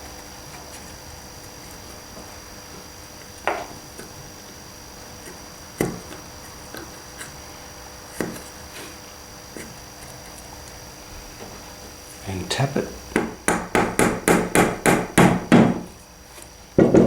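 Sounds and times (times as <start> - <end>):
wooden parts knocking on workbench: 16.8 - 17.0.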